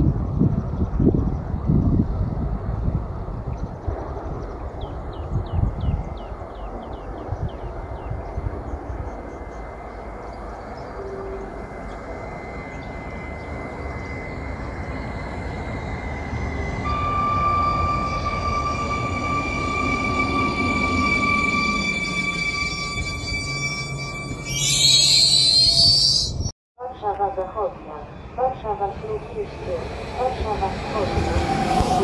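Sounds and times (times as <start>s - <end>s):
train rumbling past: 0.0s - 26.5s, 27.6s - 32.0s
bird chirps: 4.4s - 15.4s, 17.9s - 26.5s
steady high tone: 9.1s - 26.5s, 27.6s - 32.0s.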